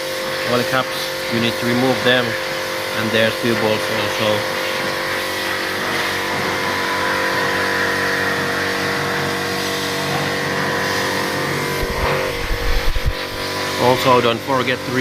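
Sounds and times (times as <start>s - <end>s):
machinery drone with whine: 0.0s - 15.0s.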